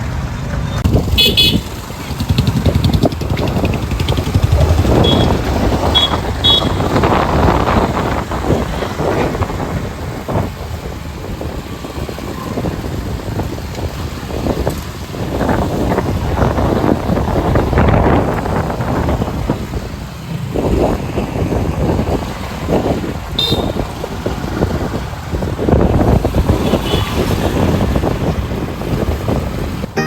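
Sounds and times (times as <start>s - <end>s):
motorcycle engine and road noise: 0.0s - 30.0s.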